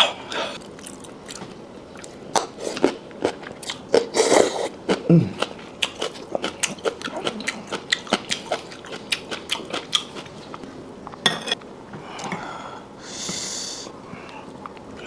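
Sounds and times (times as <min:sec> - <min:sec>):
eating clicks and smacks: 0:05.4 - 0:10.6.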